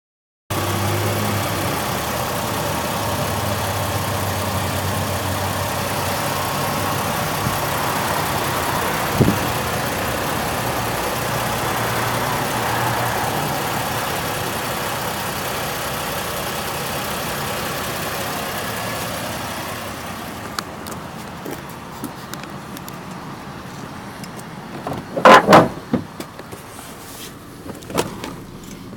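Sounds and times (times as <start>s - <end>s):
car engine idling: 0.5s - 28.9s.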